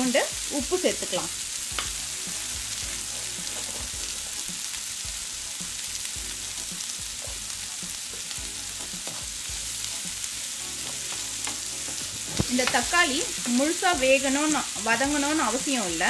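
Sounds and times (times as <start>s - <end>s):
onion sizzling in oil: 0.0s - 16.0s
small crackles and pops: 1.7s - 2.0s, 11.4s - 13.0s.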